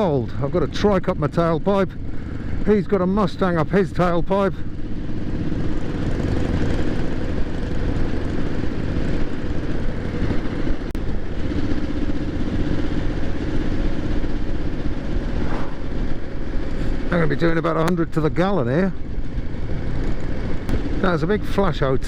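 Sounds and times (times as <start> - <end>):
motorcycle engine cruising: 0.0 - 22.0
rushing wind noise: 4.6 - 22.0.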